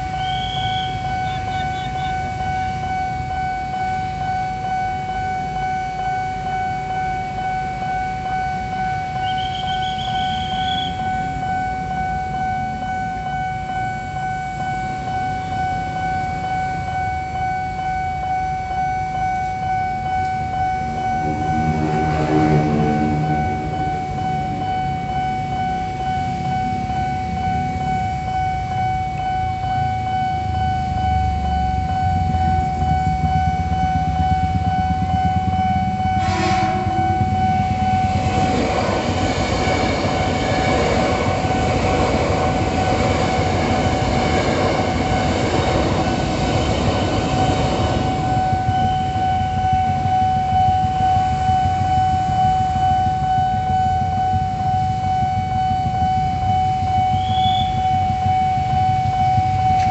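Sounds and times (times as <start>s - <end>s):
train horn: 0.0s - 2.2s, 9.2s - 11.2s, 20.7s - 24.8s, 36.0s - 40.7s, 57.2s - 57.9s
crossing alarm ringing: 0.0s - 59.9s
idling traffic rumble: 0.0s - 59.9s
train wheels rumbling on rails: 20.0s - 59.9s.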